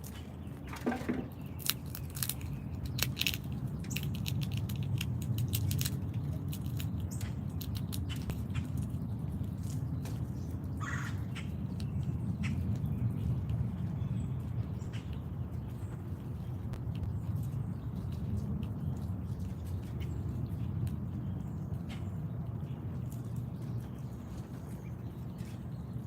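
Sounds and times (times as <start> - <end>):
animals clicking at a seed feeder: 0.0 - 26.0.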